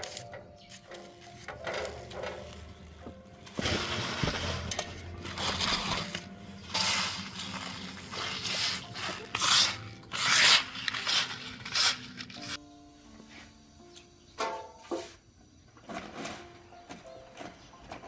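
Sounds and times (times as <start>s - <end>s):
rubbing and scraping: 3.6s - 12.6s.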